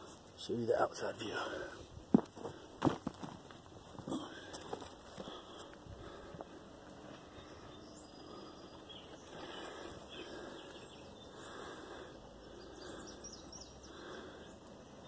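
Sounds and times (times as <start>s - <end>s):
low background noise: 0.0s - 15.0s
small birds chirping: 3.6s - 15.0s.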